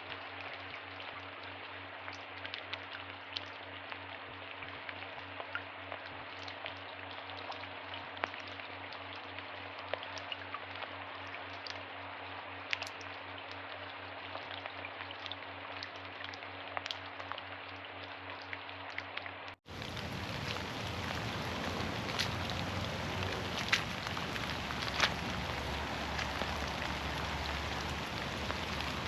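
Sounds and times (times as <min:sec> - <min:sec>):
steady rain: 0:19.4 - 0:29.0
raindrops tapping on leaves: 0:19.7 - 0:29.0.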